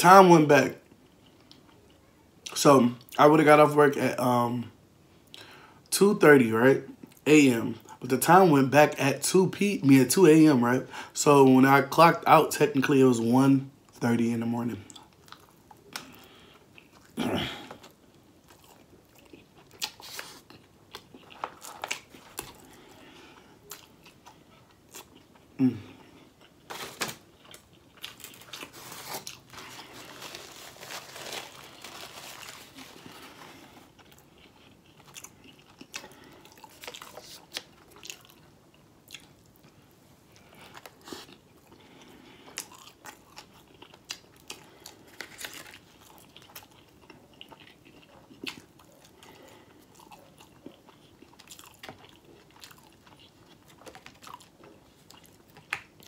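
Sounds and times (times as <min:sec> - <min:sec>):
person chewing food crunchily: 0:14.8 - 0:56.0.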